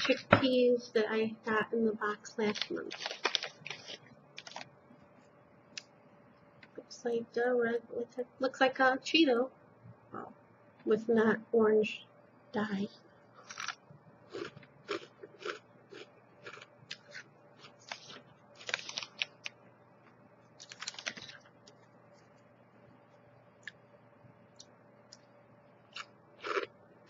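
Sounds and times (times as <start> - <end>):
person chewing crunchy snacks: 13.4 - 19.6, 20.6 - 21.8, 25.9 - 26.8.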